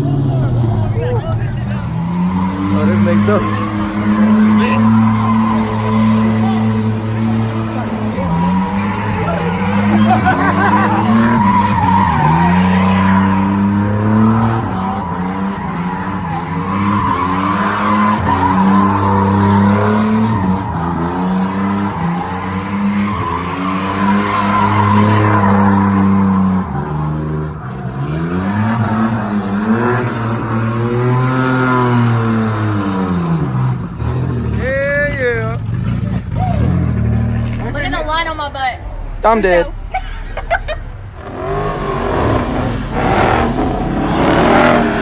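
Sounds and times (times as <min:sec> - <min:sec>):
car engine revving high: 0:00.0 - 0:34.6, 0:36.6 - 0:45.0
tyres squealing: 0:01.9 - 0:13.5.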